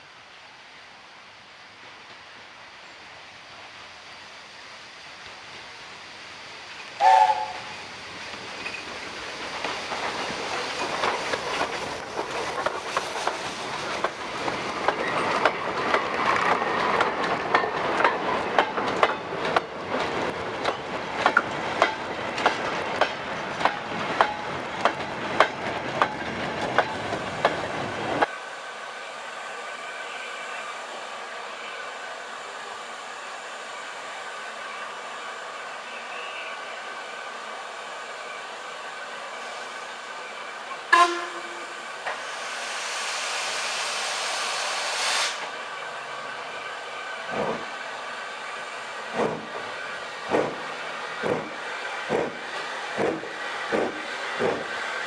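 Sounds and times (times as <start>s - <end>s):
steady hiss: 0.0s - 19.5s, 20.9s - 55.0s
train wheels clicking on rail joints: 6.7s - 28.3s, 47.3s - 47.7s, 49.0s - 55.0s.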